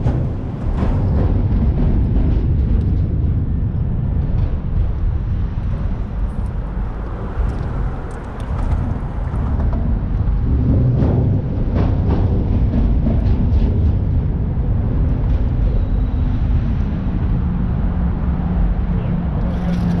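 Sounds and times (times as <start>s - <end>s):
water rumble: 0.0s - 20.0s
wind on microphone: 0.0s - 20.0s
outboard motor drone: 5.2s - 11.6s.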